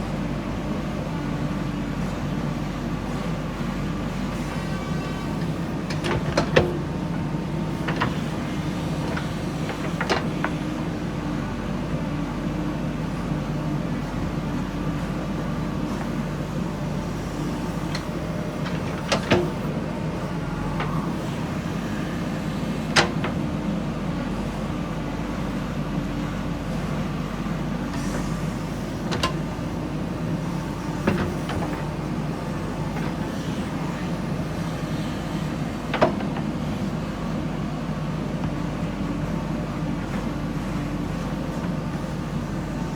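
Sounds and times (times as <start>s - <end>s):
loader bucket clanks: 5.1s - 10.8s, 15.7s - 21.6s, 22.7s - 23.6s, 27.9s - 37.1s.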